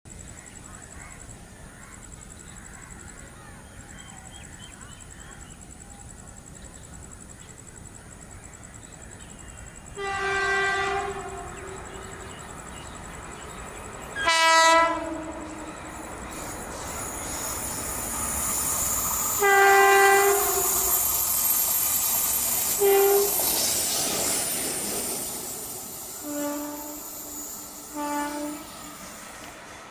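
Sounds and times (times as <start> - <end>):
electric locomotive running: 2.4 - 29.9
locomotive horn blasts: 10.0 - 11.8, 14.2 - 15.8, 19.4 - 21.0, 22.8 - 23.4, 26.2 - 27.2, 27.9 - 28.8.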